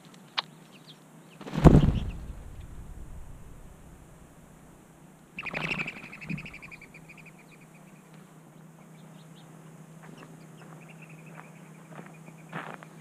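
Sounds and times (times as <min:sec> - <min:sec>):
songbird trilling: 0:05.4 - 0:08.0.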